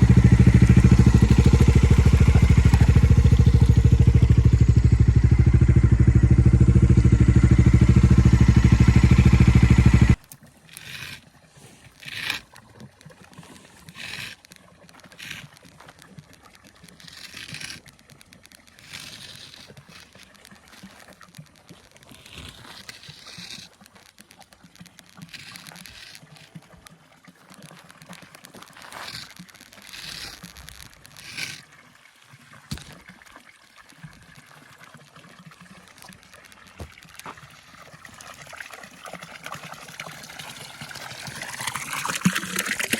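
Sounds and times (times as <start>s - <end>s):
motorcycle engine idling: 0.0s - 10.2s
faint trickling water: 10.2s - 42.9s.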